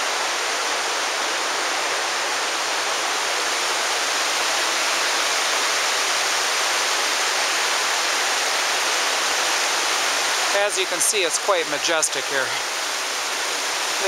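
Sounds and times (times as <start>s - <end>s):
river rushing over rocks: 0.0s - 14.0s.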